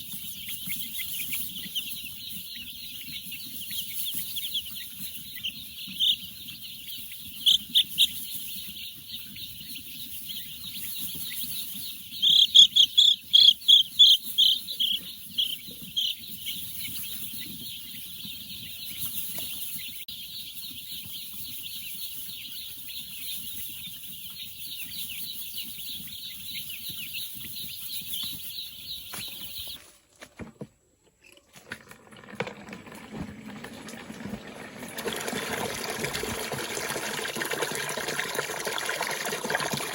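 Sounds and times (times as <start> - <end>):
high-pitched bird chirping: 0.0 - 29.8.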